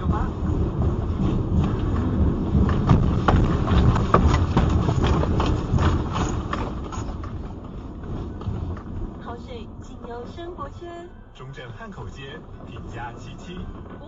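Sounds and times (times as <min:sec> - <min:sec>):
earthquake rumble: 0:00.0 - 0:11.0, 0:12.0 - 0:14.0
things rattling and knocking: 0:00.6 - 0:09.0.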